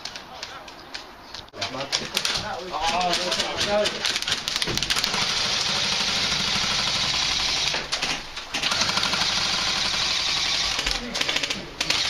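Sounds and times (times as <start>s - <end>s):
airsoft rifle automatic fire: 2.2s - 12.0s.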